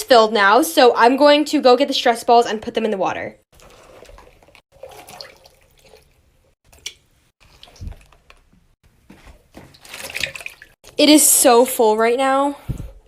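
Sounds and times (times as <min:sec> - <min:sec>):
water splashing in a sink: 0:03.5 - 0:11.8.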